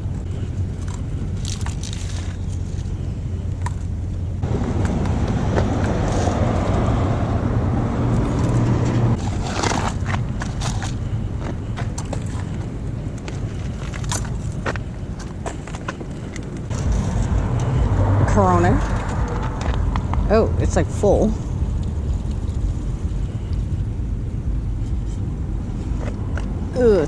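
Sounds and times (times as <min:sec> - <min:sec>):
litter and gravel clicks and rustles: 0:00.0 - 0:04.2, 0:04.8 - 0:06.9, 0:08.2 - 0:17.8, 0:21.4 - 0:23.8
passing cars rumble: 0:00.0 - 0:27.0.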